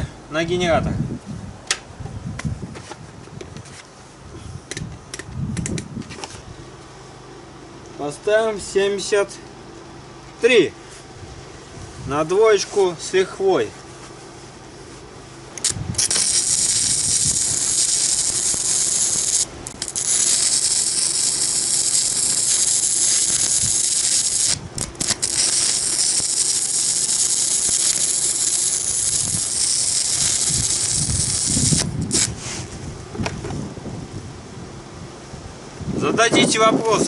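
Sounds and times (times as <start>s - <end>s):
generator hum: 0.0s - 37.0s
welding arc crackling and hissing: 15.0s - 32.7s.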